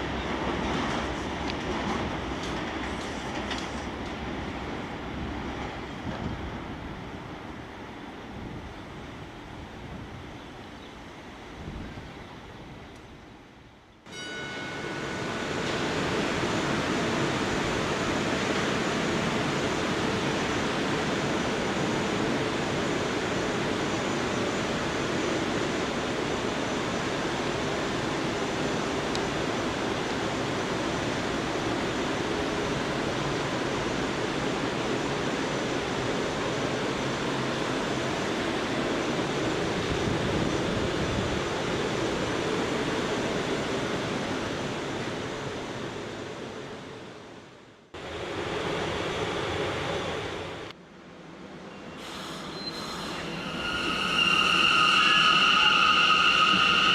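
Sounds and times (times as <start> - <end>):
subway train wheels rolling: 0.0 - 56.9.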